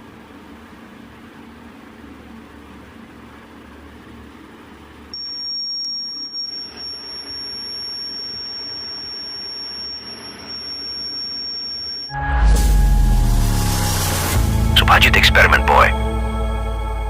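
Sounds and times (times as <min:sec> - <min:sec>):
high-pitched alarm buzzer tone: 0:05.2 - 0:12.2.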